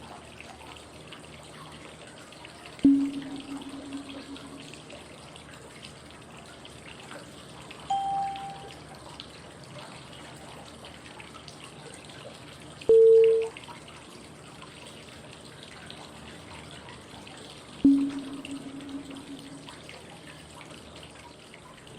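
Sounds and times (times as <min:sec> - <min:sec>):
flowing water white noise: 0:07.9 - 0:08.7
short cue tones: 0:07.9 - 0:08.7, 0:12.9 - 0:13.5.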